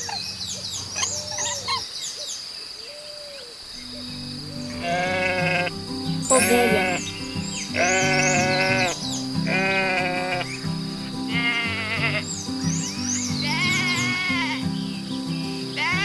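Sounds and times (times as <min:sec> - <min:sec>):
light background music: 0:03.8 - 0:16.0
sheep bleating: 0:04.6 - 0:10.6, 0:11.2 - 0:12.3, 0:13.4 - 0:14.6, 0:15.8 - 0:16.0.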